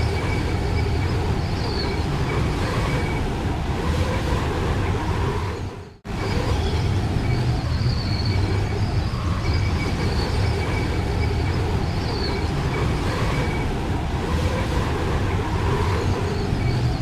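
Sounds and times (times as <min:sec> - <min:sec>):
faint high whistling: 0:00.0 - 0:03.2, 0:05.8 - 0:13.7
blizzard wind rumbling: 0:00.0 - 0:17.0.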